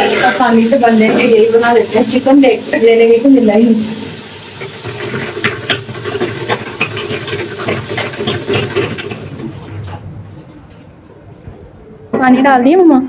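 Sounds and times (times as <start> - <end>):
water pouring into pot: 0.0 - 9.5
vegetables sizzling in a pot: 0.0 - 9.6.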